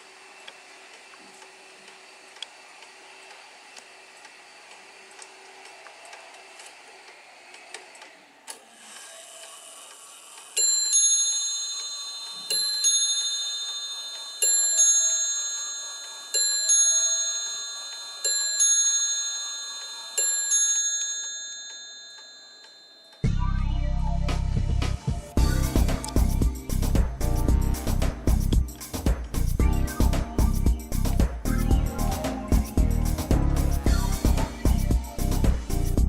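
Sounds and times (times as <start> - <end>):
mantel clock ticking: 4.2 - 23.2
clock striking bell: 10.6 - 23.3
music: 23.2 - 36.0.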